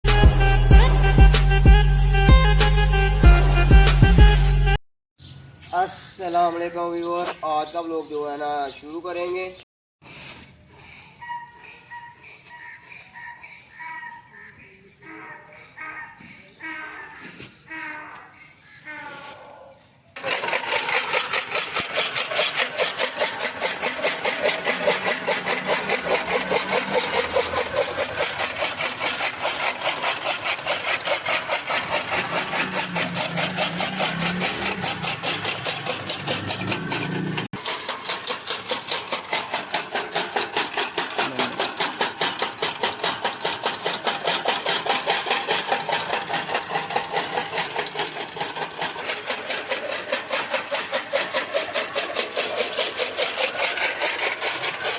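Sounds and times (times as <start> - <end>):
chaff cutter chopping fodder: 20.2 - 54.9.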